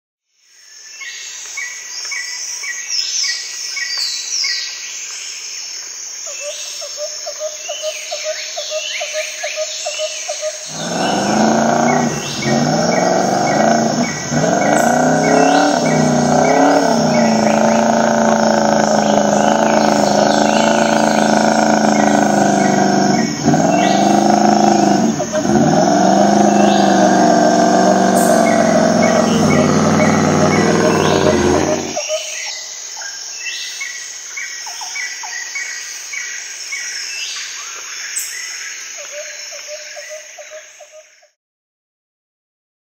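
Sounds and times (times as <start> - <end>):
birds chirping: 9.8 - 32.1
engine running hard: 10.7 - 32.0.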